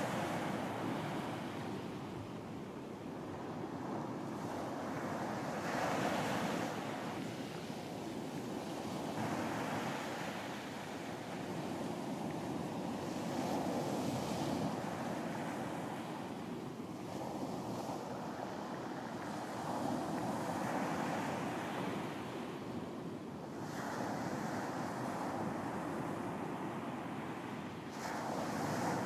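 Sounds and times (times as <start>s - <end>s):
waves breaking on beach: 27.9s - 29.0s.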